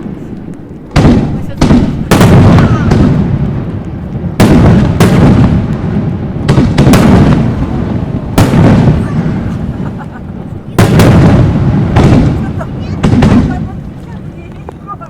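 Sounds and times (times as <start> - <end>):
fireworks booming: 0.0 - 15.0
low rumbling echo: 0.0 - 15.0.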